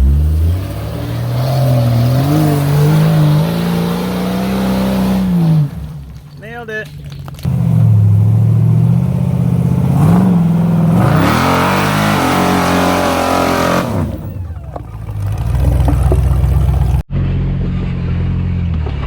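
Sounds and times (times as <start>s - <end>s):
engine revving: 0.0s - 6.2s, 7.4s - 19.0s.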